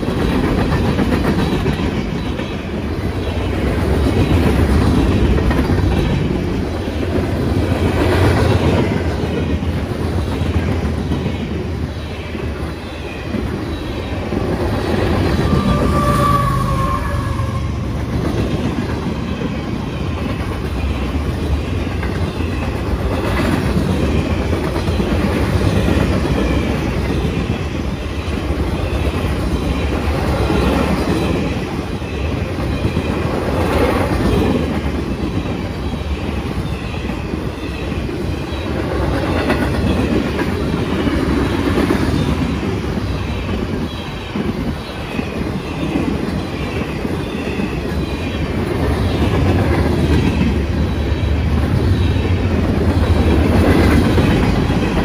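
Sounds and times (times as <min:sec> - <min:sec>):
clickety-clack over rail joints: 0:00.0 - 0:55.0
freight train wheels rumbling: 0:00.0 - 0:55.0
wheel squeal: 0:15.0 - 0:18.0.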